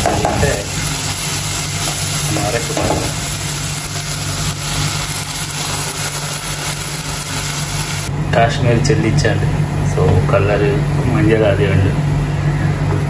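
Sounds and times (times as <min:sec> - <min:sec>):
onions and tomatoes sizzling: 0:00.0 - 0:08.1
low mechanical hum: 0:00.0 - 0:13.0.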